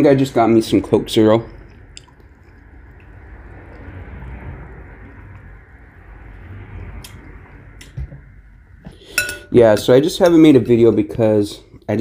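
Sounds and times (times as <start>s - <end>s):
person chewing food: 1.3s - 7.8s.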